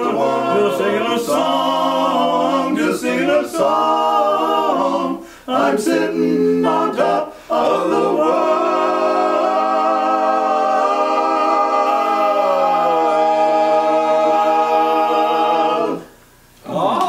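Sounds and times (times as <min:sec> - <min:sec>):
quartet singing a cappella: 0:00.0 - 0:16.2.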